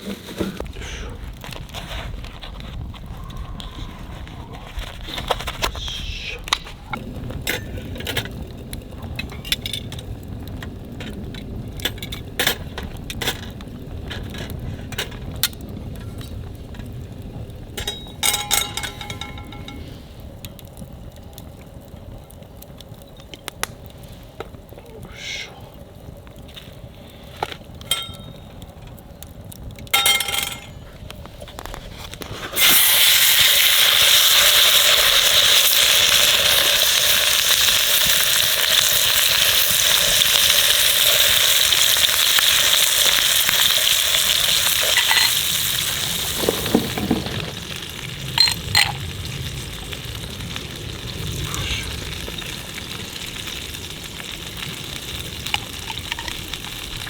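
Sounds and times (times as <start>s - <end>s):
utensil clinking against pan: 17.8s - 19.8s
food sizzling in hot oil: 32.6s - 57.0s.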